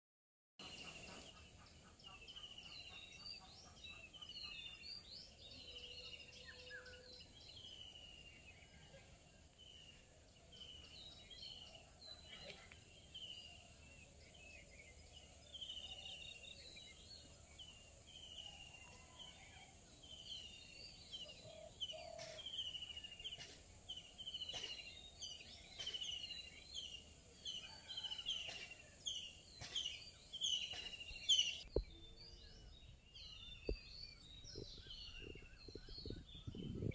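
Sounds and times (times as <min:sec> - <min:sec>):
small birds calling: 0:20.0 - 0:36.9.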